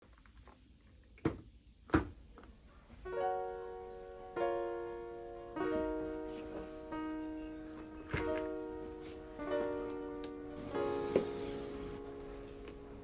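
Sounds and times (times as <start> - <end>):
lofi electric piano chords: 3.0 - 13.0.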